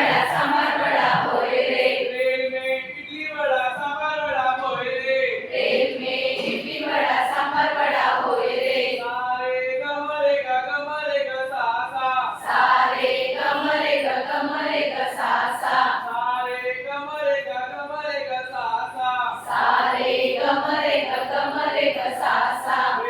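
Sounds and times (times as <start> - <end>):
group of voices chanting a song: 0.0 - 2.4, 5.4 - 9.2, 12.4 - 16.2, 19.4 - 23.0.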